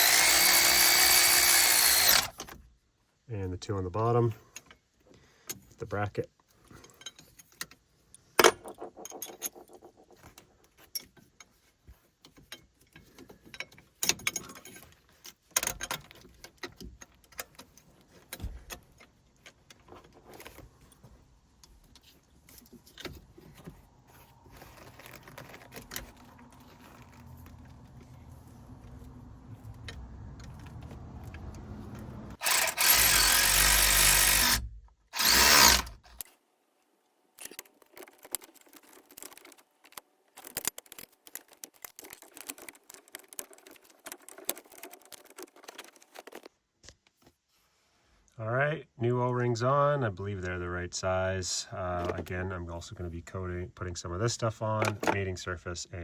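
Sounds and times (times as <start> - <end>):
power tool driving bolts: 0.0 - 2.6, 32.3 - 36.3
tools clinking against metal: 8.4 - 10.2.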